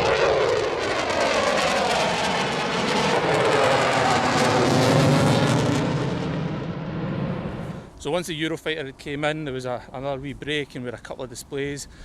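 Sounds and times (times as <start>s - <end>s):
jet engines roaring: 0.0s - 8.0s.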